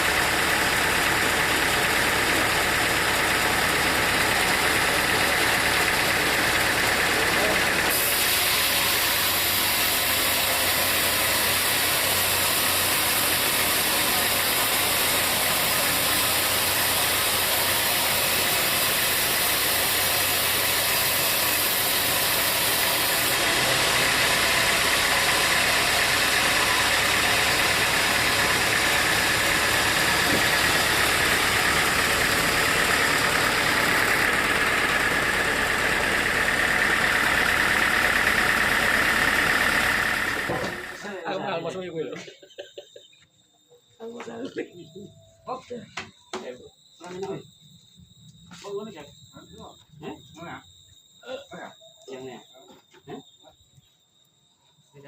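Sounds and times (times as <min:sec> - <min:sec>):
sawmill machinery droning: 0:00.0 - 0:41.6.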